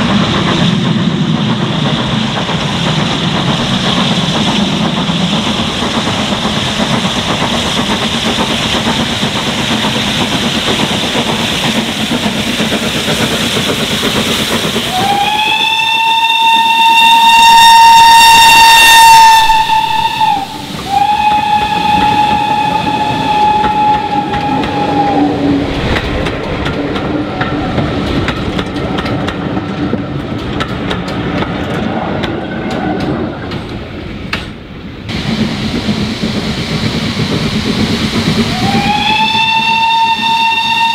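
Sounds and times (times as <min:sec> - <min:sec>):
steam train running: 0:00.0 - 0:40.9
steam whistle blasts: 0:14.9 - 0:25.4, 0:38.5 - 0:40.9
wheels clicking over rail joints: 0:25.9 - 0:34.6.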